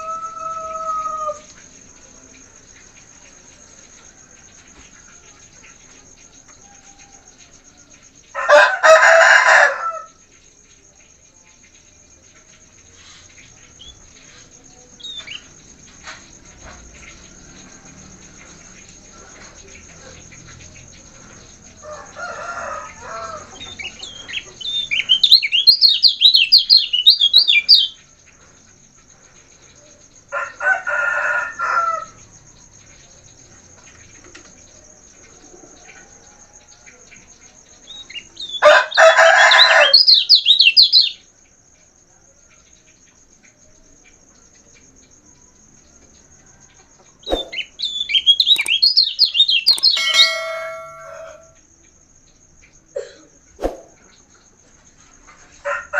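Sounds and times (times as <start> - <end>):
lower bird calls: 47.2 - 51.5
songbird twittering: 47.2 - 51.5
faint steady high tone: 48.5 - 49.0, 49.7 - 51.6.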